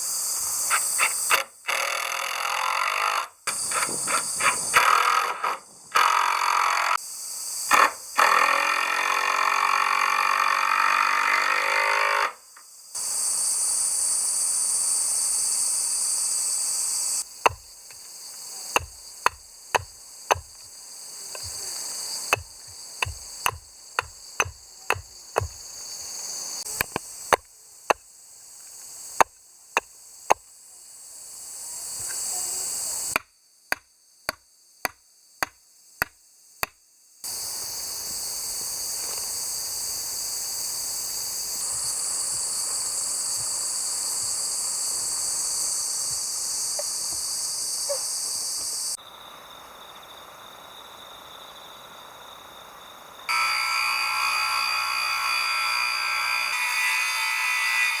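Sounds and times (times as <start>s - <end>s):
insects hissing: 0.0s - 58.0s
hammer striking wood: 17.4s - 17.7s, 18.7s - 20.6s, 22.3s - 25.6s.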